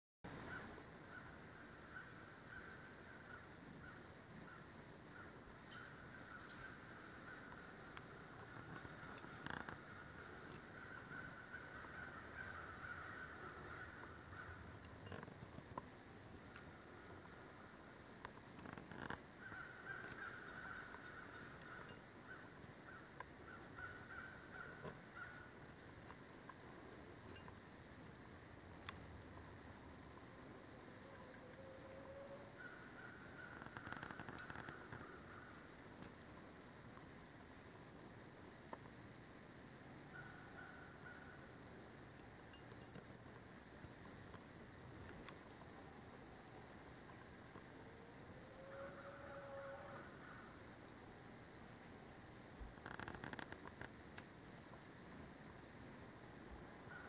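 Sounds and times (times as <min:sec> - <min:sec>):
distant bird calling: 0:00.3 - 0:25.8, 0:28.4 - 0:35.8, 0:40.1 - 0:41.8, 0:45.2 - 0:50.7, 0:56.4 - 0:57.0.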